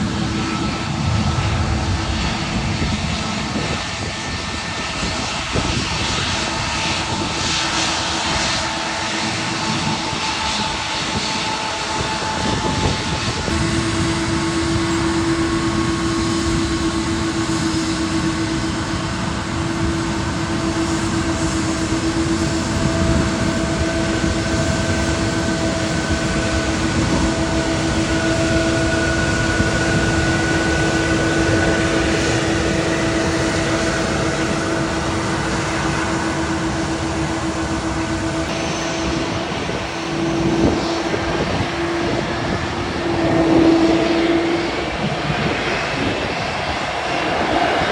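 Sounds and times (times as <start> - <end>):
high engine whine: 0.0 - 47.9
jet engines running: 0.0 - 47.9.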